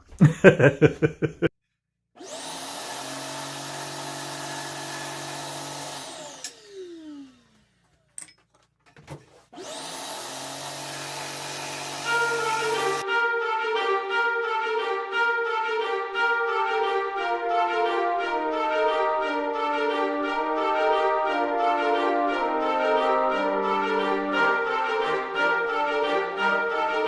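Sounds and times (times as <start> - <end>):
saw winding down: 2.2 - 8.1, 9.6 - 13.0
scroll saw motor humming: 2.2 - 8.1, 9.6 - 13.0.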